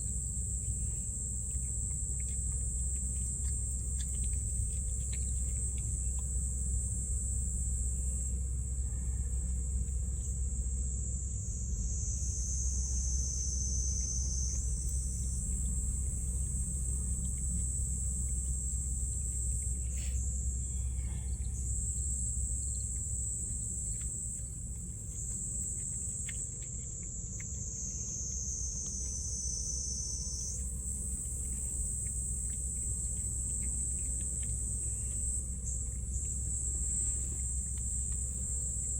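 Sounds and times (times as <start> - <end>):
shrill insect chorus: 7.2 - 38.9.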